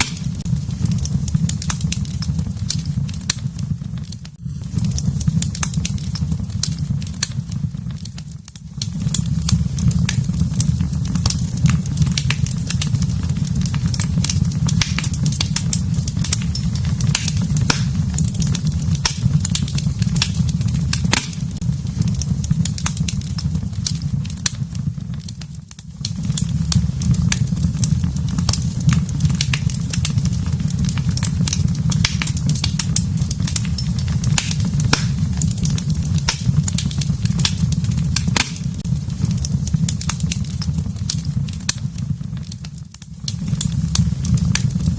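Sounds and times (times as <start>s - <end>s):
wood fire crackling and popping: 0.0s - 44.9s.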